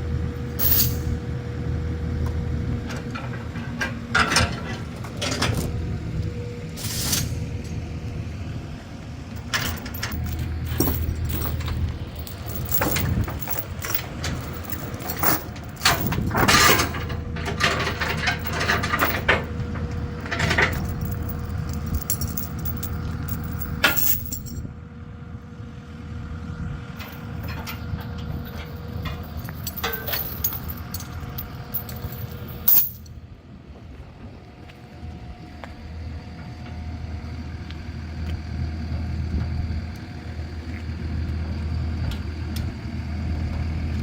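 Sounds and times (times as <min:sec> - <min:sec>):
vehicle engine running: 0:07.7 - 0:24.6
metallic clinks and knocks: 0:09.4 - 0:24.6, 0:27.0 - 0:33.1.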